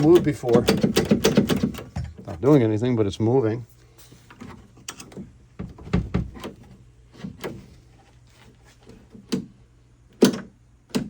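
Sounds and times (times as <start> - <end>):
door latch clicking and clunking: 0.0 - 2.3.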